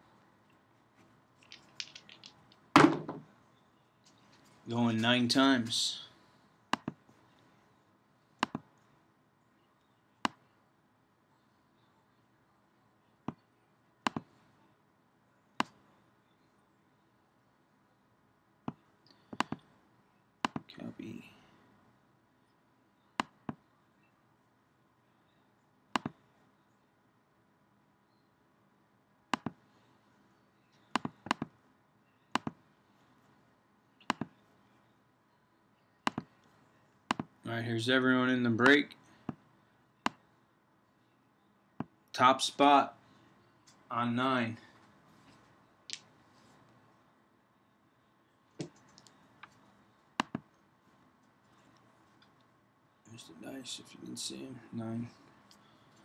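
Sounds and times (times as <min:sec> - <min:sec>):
computer mouse clicking: 0:26.0 - 0:26.2, 0:32.3 - 0:32.6, 0:34.0 - 0:34.4, 0:50.2 - 0:50.6.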